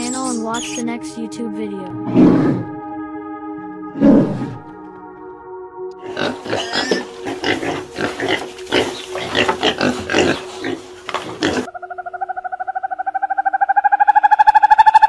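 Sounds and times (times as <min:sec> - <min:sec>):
pigs grunting and squealing: 0:06.0 - 0:11.7.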